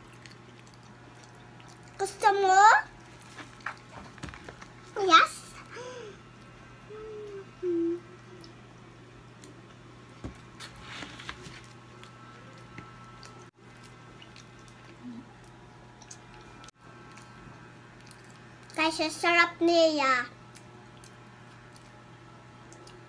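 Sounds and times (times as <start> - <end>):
child chewing: 0.0 - 2.2, 2.8 - 5.0, 6.3 - 18.8, 20.4 - 23.0
child humming mm: 6.8 - 8.6.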